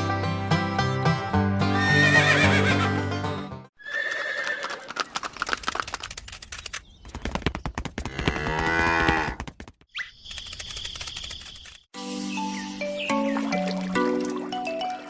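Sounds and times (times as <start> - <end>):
background music: 0.0 - 3.7, 12.0 - 15.0
horse whinny: 1.8 - 2.8, 3.8 - 5.0
hooves clip-clopping: 3.9 - 9.9.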